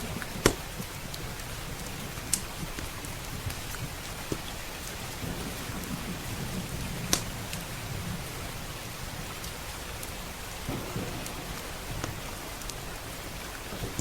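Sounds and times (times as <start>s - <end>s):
fireplace crackles: 0.0s - 14.0s
low thunder rumble: 0.0s - 14.0s
steady rain: 0.0s - 14.0s.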